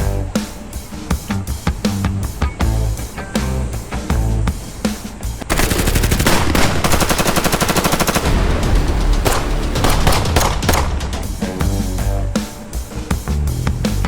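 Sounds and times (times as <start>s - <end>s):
automatic gunfire: 5.5s - 11.2s.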